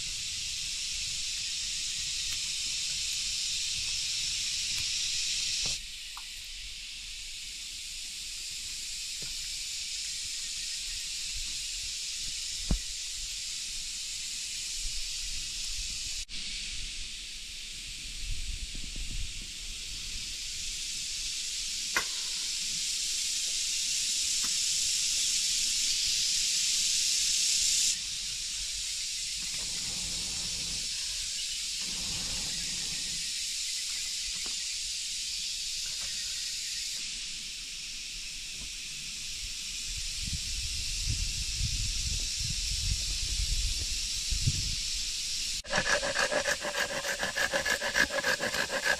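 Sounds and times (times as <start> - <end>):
steady rain hiss: 22.8 - 33.2.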